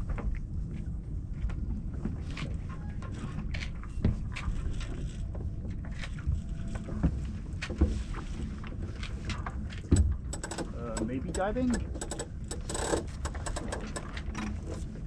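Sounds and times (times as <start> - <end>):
wind and water rumble: 0.0 - 15.0
boat gear clicking and knocking: 9.3 - 15.0.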